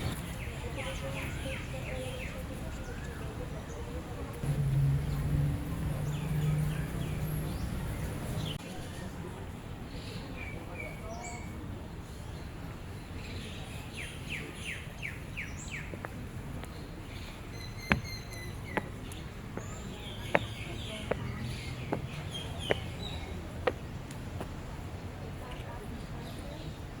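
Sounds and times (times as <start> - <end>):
birds chirping: 0.0 - 8.6, 13.4 - 23.9.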